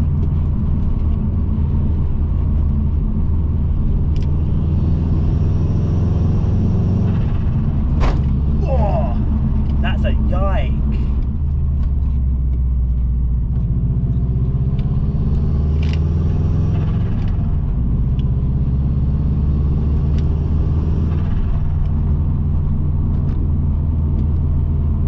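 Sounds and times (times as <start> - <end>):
car engine running: 0.0 - 18.8.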